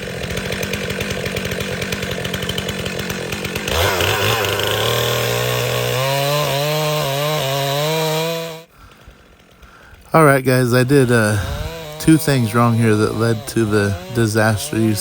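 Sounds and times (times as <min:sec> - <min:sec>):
chainsaw running: 0:00.0 - 0:15.0.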